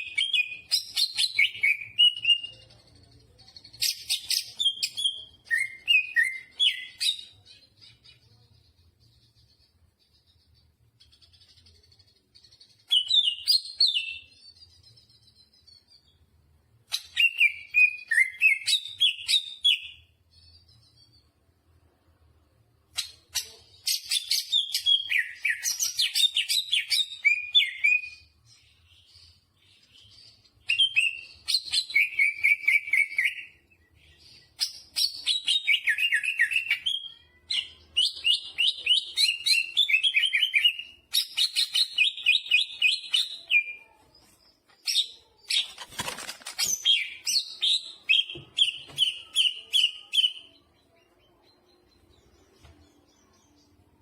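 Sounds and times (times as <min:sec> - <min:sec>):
brief rustle: 0:45.5 - 0:47.0.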